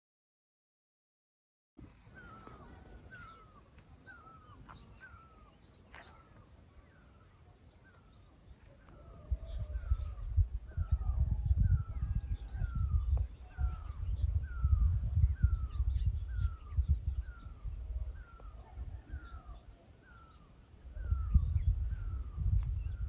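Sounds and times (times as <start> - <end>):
bird calling: 1.8 - 11.1
wind buffeting microphone: 8.7 - 23.0.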